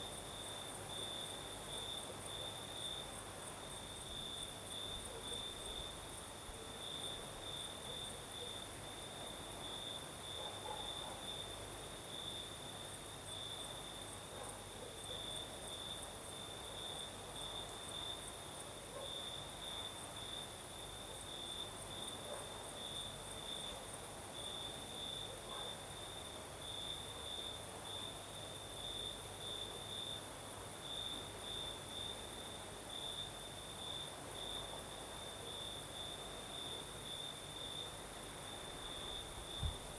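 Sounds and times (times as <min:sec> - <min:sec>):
crickets trilling: 0:00.0 - 0:14.2, 0:15.0 - 0:39.9.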